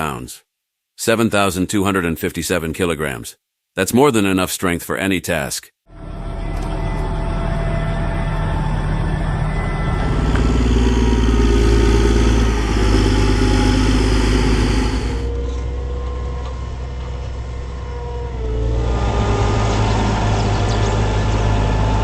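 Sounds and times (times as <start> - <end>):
tractor diesel engine running: 5.9 - 22.0.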